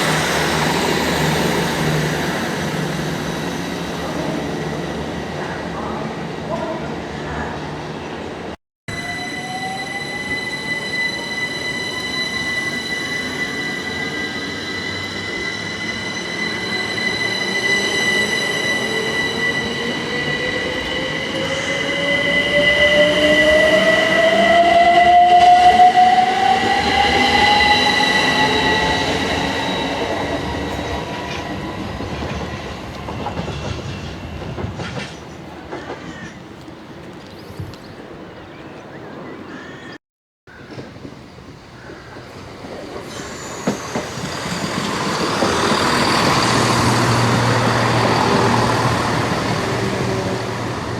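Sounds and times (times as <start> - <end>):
train squeal: 0.0 - 6.8, 8.9 - 36.4, 42.1 - 50.9
train whine rising in pitch: 8.9 - 33.7, 42.9 - 50.9.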